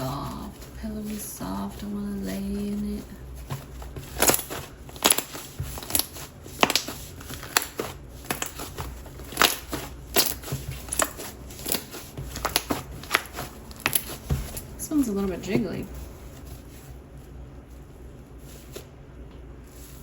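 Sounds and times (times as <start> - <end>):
slime squished by hand: 3.4 - 14.8.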